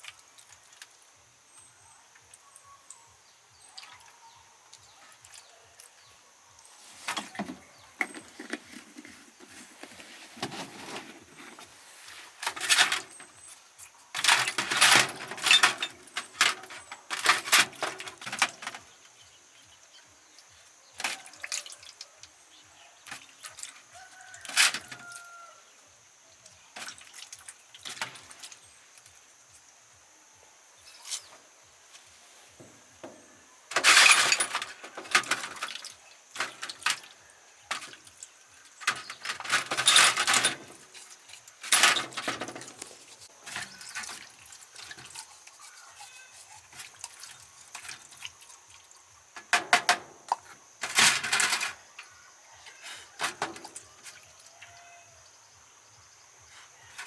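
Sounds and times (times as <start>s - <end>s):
objects clinking and rustling: 7.0s - 11.7s, 12.4s - 13.5s, 14.1s - 18.9s, 33.1s - 37.1s, 38.7s - 46.9s, 49.4s - 51.9s.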